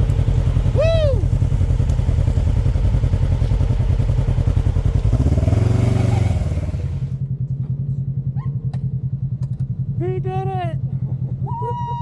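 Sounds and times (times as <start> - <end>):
engine revving: 0.0 - 7.2.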